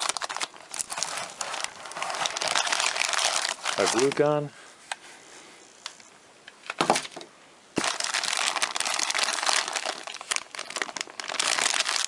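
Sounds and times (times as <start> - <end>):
plastic packaging crinkling: 0.0 - 4.4, 7.8 - 12.0.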